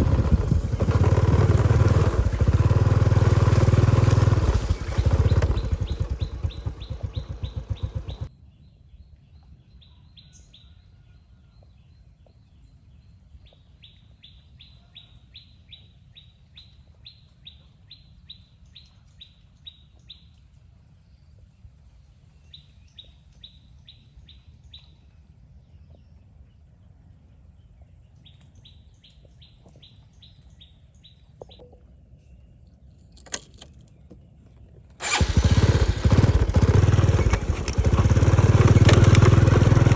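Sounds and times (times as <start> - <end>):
motorbike engine running: 0.0 - 8.3, 33.2 - 33.9, 35.0 - 39.9
bird chirping: 4.6 - 12.4.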